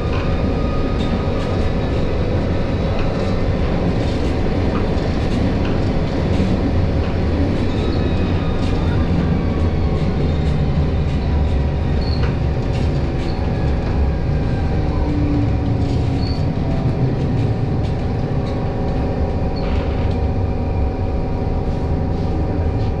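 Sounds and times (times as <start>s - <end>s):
constant hum: 0.0s - 23.0s
tram wheels rumbling on track: 0.0s - 23.0s
high wheel squeaks: 7.0s - 13.6s.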